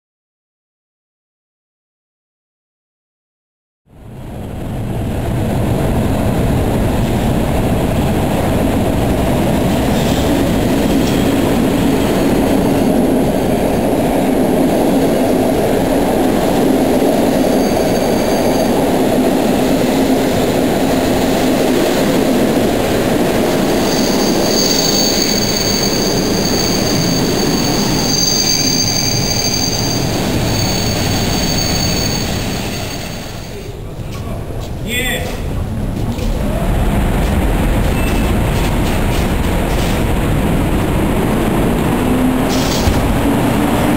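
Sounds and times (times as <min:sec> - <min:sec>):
train wheels rumbling on rails: 0:04.0 - 0:43.9
high wheel squeal: 0:17.2 - 0:18.8, 0:23.6 - 0:33.6.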